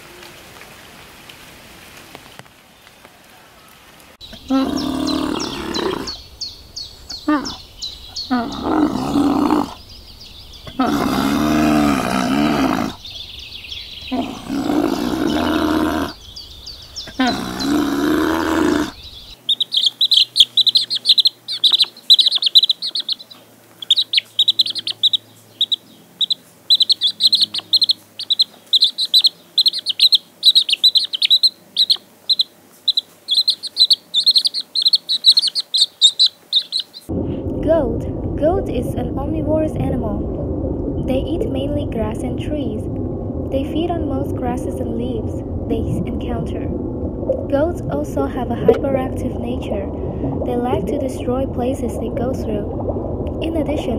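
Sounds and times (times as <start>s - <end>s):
long wavering animal calls: 4.3s - 6.2s, 14.0s - 37.1s
chicks peeping: 18.9s - 37.1s.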